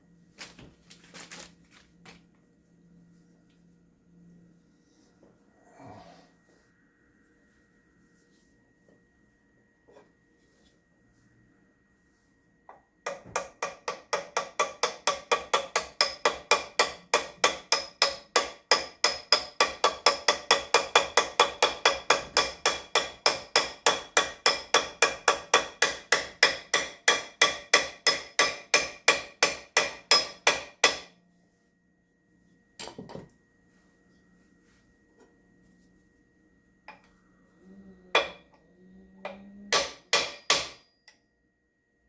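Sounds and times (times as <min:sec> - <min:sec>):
hammer striking metal: 0:13.1 - 0:31.1, 0:38.2 - 0:38.5, 0:39.2 - 0:41.2.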